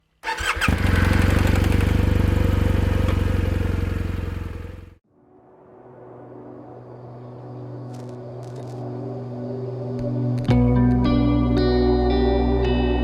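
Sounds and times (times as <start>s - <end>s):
motorcycle engine running: 0.3s - 5.0s
soft music: 5.0s - 13.0s.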